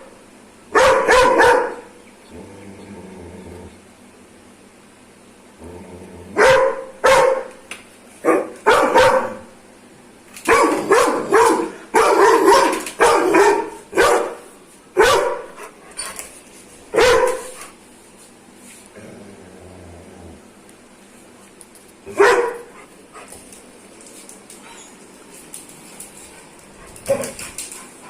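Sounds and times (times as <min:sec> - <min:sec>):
dog barking: 0:00.8 - 0:01.9, 0:06.4 - 0:07.6, 0:08.2 - 0:09.5, 0:10.5 - 0:15.6, 0:16.9 - 0:17.7, 0:22.1 - 0:22.8.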